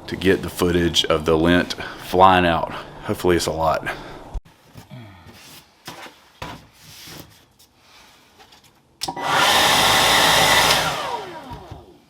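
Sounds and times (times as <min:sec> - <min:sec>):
electric leaf blower running: 0:09.1 - 0:12.0.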